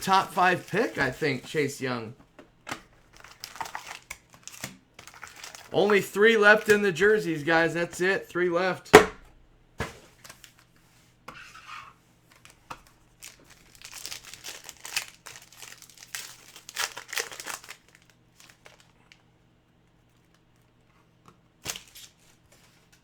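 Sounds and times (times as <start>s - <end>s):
cards rustling: 0.0s - 2.1s, 3.1s - 9.0s
card pack wrapper crinkling: 3.1s - 6.8s, 13.2s - 18.9s.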